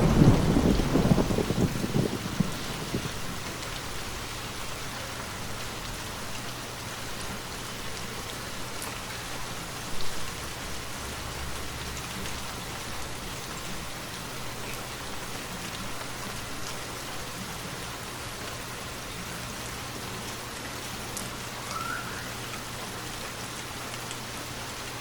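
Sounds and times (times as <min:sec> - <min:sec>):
low thunder rumble: 0:00.0 - 0:04.4
steady rainfall: 0:00.0 - 0:25.0.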